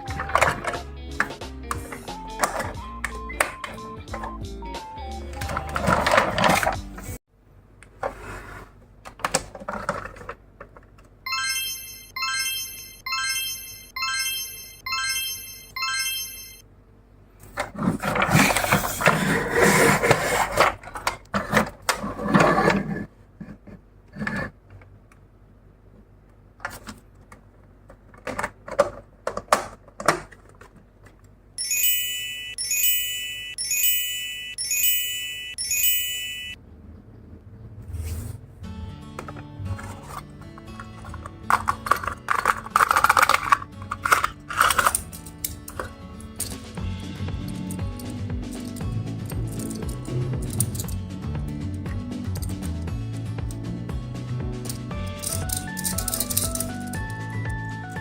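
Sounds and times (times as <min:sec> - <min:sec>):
electronic chime-like tone: 0:11.3 - 0:16.6, 0:31.6 - 0:36.6
toy cars clicking and knocking: 0:41.0 - 0:46.6, 0:54.7 - 0:56.8.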